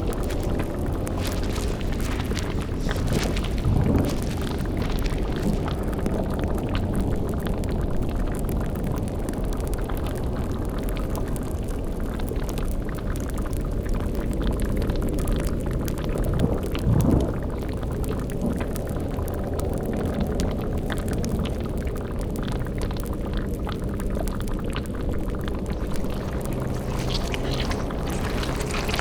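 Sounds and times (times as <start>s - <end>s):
low rumble: 0.0s - 9.4s, 16.3s - 20.6s, 24.0s - 29.0s
cauldron bubbling: 0.0s - 29.0s
crackles: 0.0s - 29.0s.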